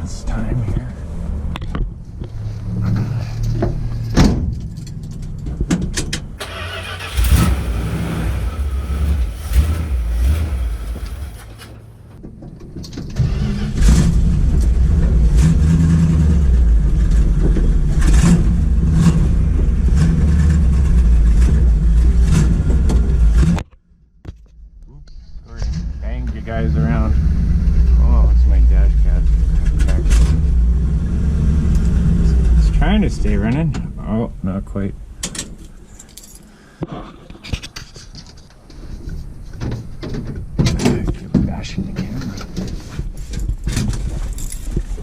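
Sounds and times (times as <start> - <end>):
car engine cranking and starting: 0.9 - 12.2, 12.9 - 23.6, 25.6 - 34.2.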